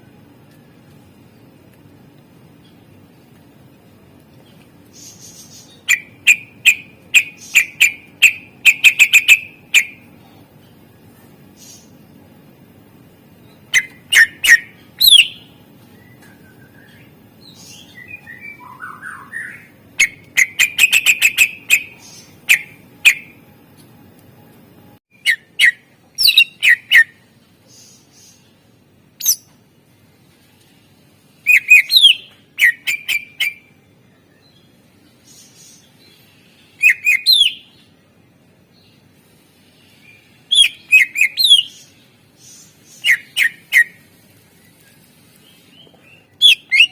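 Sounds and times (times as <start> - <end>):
bird whistling and chattering: 5.0 - 10.0, 13.7 - 15.5, 18.0 - 23.4, 25.2 - 27.2, 29.2 - 29.5, 31.4 - 33.7, 36.8 - 37.7, 40.5 - 41.9, 43.0 - 44.0, 46.4 - 46.9.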